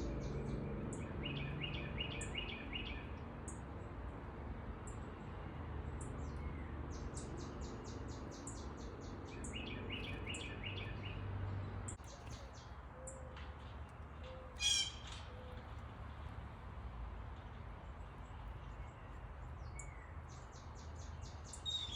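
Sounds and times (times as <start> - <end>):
songbirds chirping: 0.0 - 21.9
high evenly spaced bird chips: 6.0 - 11.2, 11.9 - 15.8, 17.6 - 21.9.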